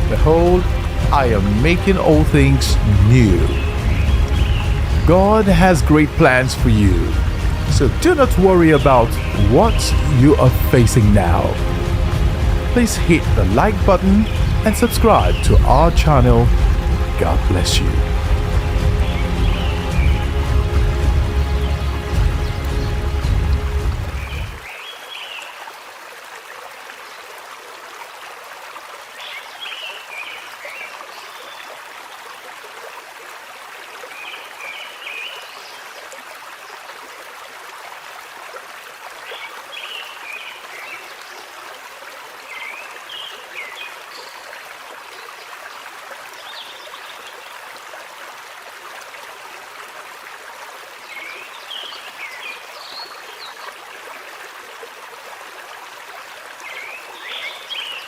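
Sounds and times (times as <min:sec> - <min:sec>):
stream water rushing: 0:00.0 - 0:58.0
high chirping calls: 0:03.4 - 0:06.4.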